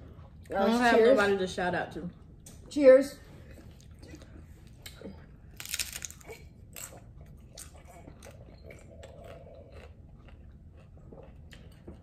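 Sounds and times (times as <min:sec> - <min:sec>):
crunchy taco chewing: 0:04.8 - 0:12.0.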